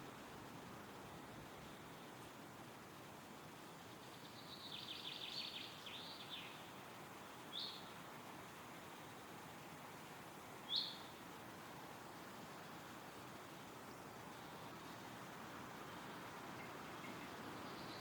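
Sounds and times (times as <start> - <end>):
wind rustling through trees: 0.0 - 18.0
songbird twittering: 3.9 - 6.7, 7.5 - 7.9, 10.7 - 11.2, 15.8 - 18.0
bird chirps: 4.0 - 6.6, 7.5 - 7.9, 10.7 - 11.1.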